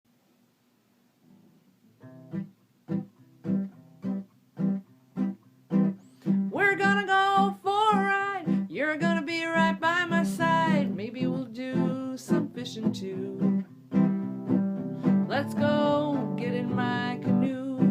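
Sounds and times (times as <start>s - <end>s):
acoustic guitar strumming: 2.0s - 17.9s.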